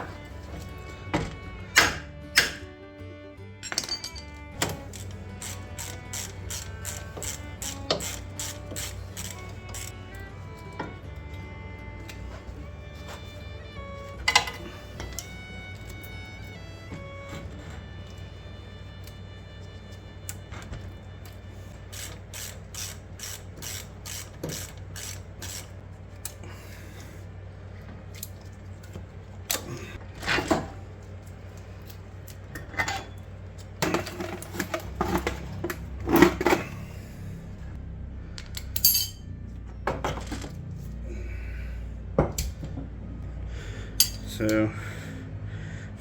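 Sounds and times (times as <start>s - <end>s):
metal tools clinking: 3.6s - 9.9s, 38.8s - 39.4s, 44.0s - 44.4s.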